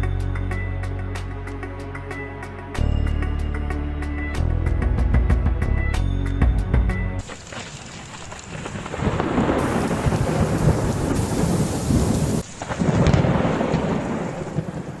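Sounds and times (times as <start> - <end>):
rain hiss: 7.2 - 15.0
storm rumbling roar: 8.6 - 15.0.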